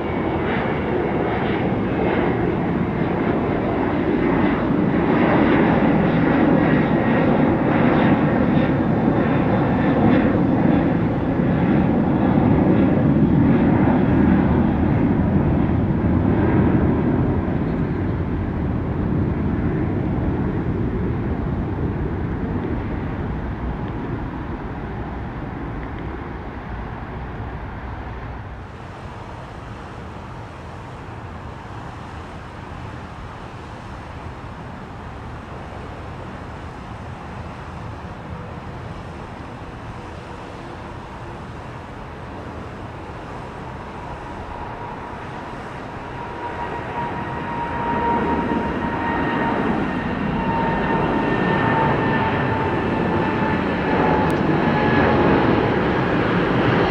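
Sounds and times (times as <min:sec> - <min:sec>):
jet airliner taking off: 0:00.0 - 0:56.9.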